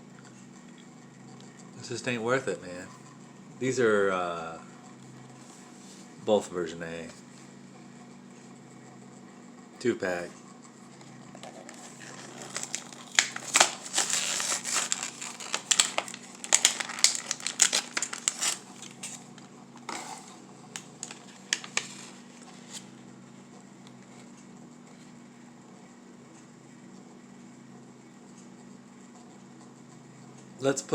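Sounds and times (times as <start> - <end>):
plastic packaging crinkling: 11.4 - 19.5, 20.2 - 22.8.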